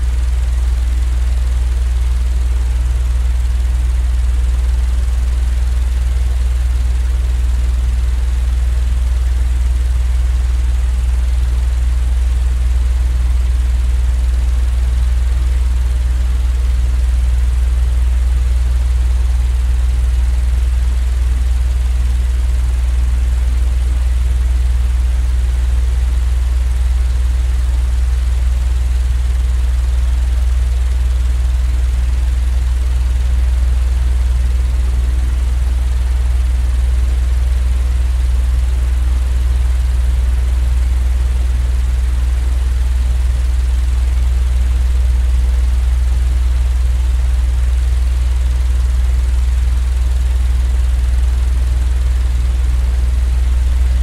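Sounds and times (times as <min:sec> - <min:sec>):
white noise rumble and hiss: 0:53.5 - 0:54.0.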